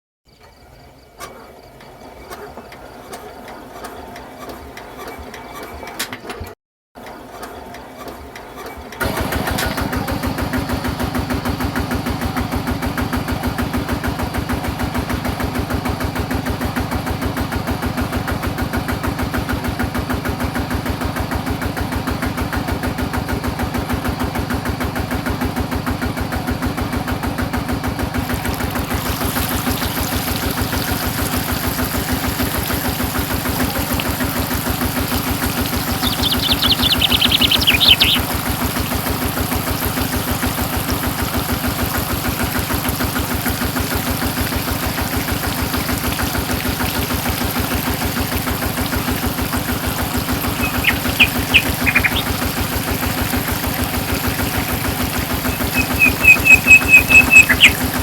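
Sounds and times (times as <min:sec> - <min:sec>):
model diesel engine running: 0:00.6 - 0:58.0
faint mechanical sound: 0:28.1 - 0:58.0.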